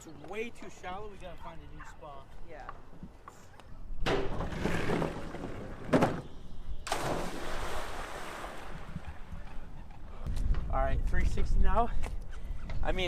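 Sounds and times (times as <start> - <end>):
water rushing and splashing: 6.9 - 9.0.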